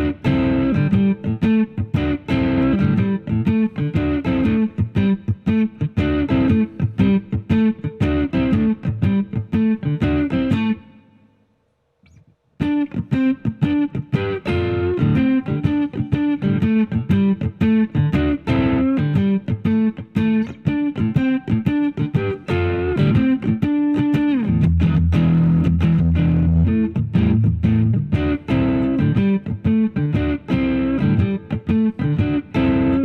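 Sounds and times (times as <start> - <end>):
overdriven electric guitar picking: 0.0 - 11.3, 12.0 - 33.0.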